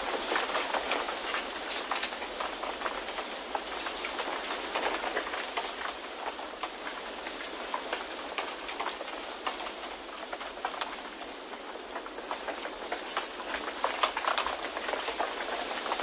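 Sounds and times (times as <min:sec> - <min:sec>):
small ticks and patters: 0:00.0 - 0:16.0.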